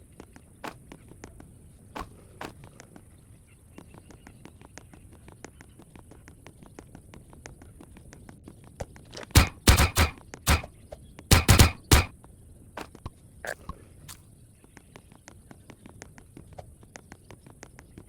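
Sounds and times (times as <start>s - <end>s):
loud sharp pops: 9.3s - 10.7s, 11.3s - 12.1s.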